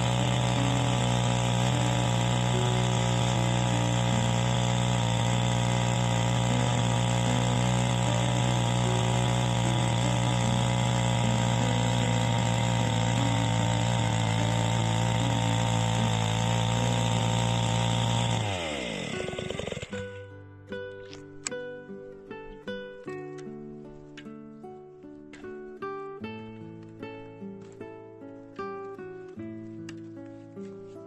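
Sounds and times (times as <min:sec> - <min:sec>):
small engine running and winding down: 0:00.0 - 0:20.2.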